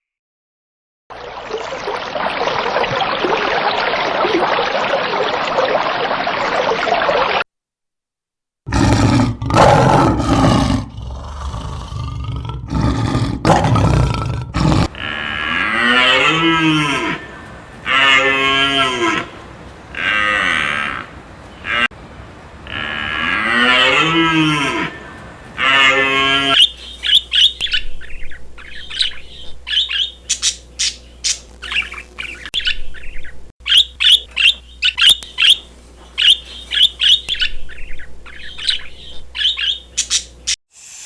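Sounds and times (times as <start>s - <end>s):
cattle bellowing and mooing: 14.6s - 26.6s
steady rushing noise: 14.8s - 26.5s.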